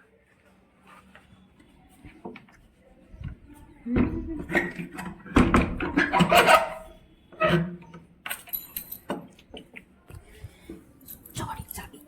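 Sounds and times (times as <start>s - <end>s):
keys and padlock jangling: 8.3s - 9.2s, 11.0s - 11.9s.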